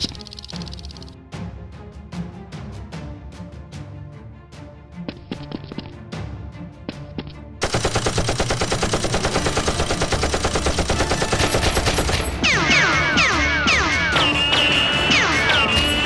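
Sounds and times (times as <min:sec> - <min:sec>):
sharp clicks: 0:00.0 - 0:01.2
rapid automatic gunfire: 0:07.6 - 0:12.3.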